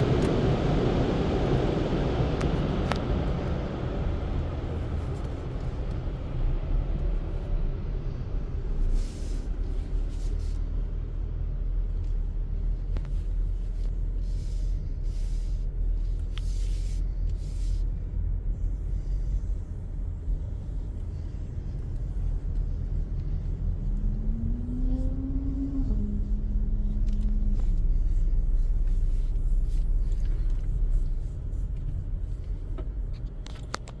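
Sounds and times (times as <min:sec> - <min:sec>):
car wash equipment rumbling: 0:00.0 - 0:34.0
rising hum into steady tone: 0:22.3 - 0:28.6.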